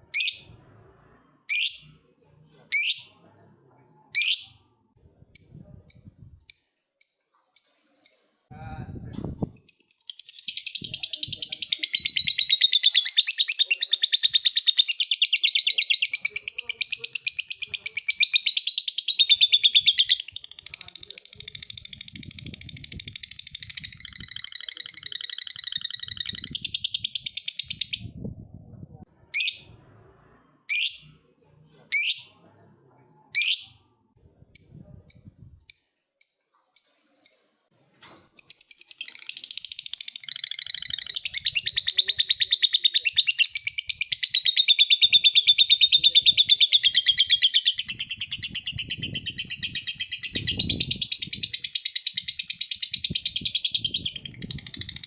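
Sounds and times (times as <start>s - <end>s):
lovebird chattering trill: 38.4s - 55.0s.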